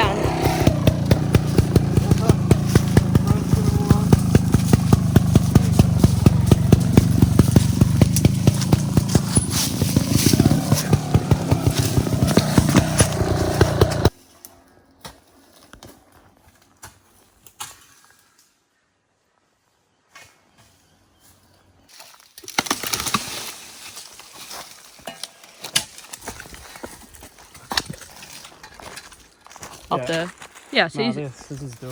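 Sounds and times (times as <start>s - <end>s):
dirt bike engine running: 0.0s - 14.2s.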